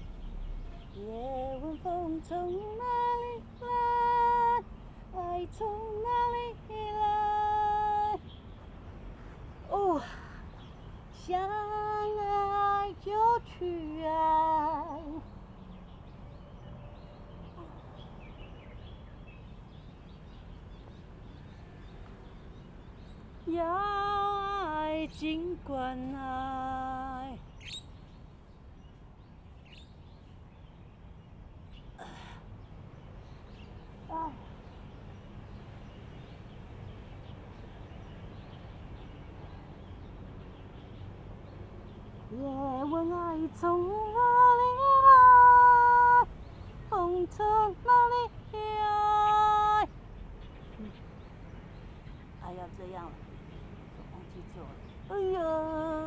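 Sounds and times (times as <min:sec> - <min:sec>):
low outdoor background rumble: 0:00.0 - 0:56.0
faint bird chirps: 0:26.9 - 0:40.1.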